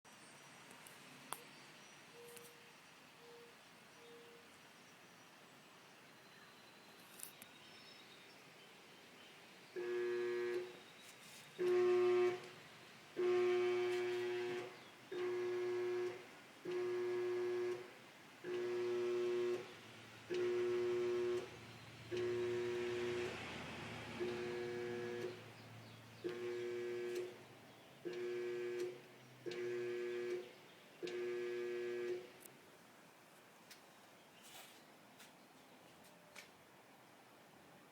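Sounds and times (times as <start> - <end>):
dryer electrical buzz: 9.8 - 10.8, 11.6 - 25.6, 26.2 - 32.5.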